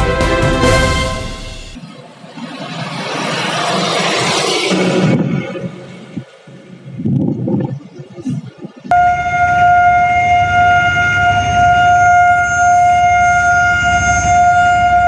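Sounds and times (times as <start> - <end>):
loud steady tone: 8.9 - 15.0.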